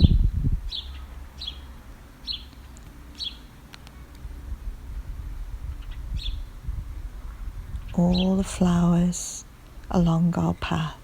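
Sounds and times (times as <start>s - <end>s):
faint low rumble: 4.0s - 11.0s.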